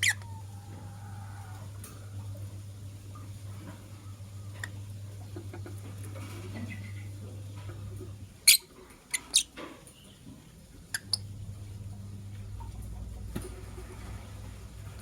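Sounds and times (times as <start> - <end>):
lovebirds chirping: 0.0 - 1.6, 6.2 - 11.4.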